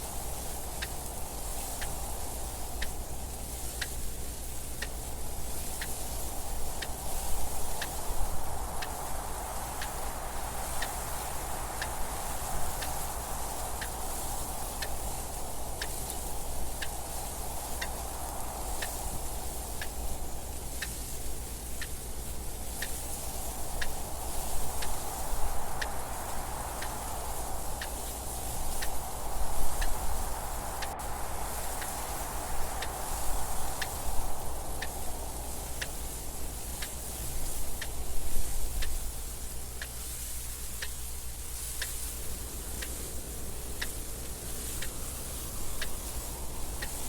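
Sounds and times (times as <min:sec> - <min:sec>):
wind gusting: 0:22.2 - 0:39.8, 0:42.2 - 0:47.0
clock ticking: 0:34.7 - 0:40.2, 0:41.8 - 0:47.0.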